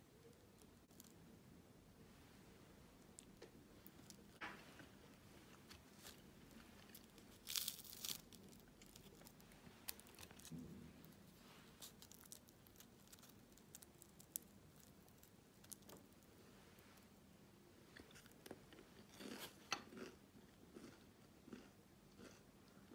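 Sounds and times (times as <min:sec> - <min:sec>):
crinkling rustle: 0:03.2 - 0:17.0.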